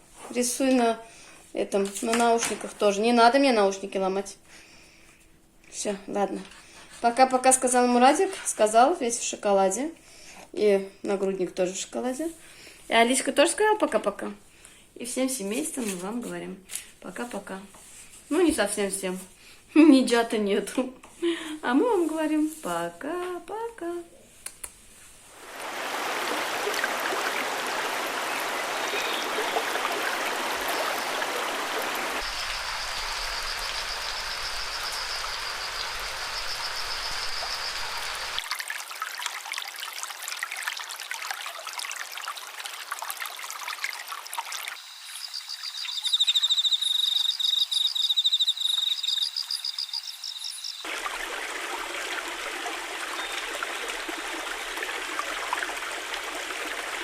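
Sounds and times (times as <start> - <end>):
running water: 25.2 - 46.4, 50.8 - 57.0
high rapid chirping: 45.2 - 50.8.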